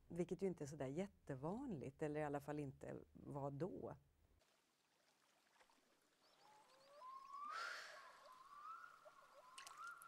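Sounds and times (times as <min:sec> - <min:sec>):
faint birdsong: 0:05.7 - 0:10.0.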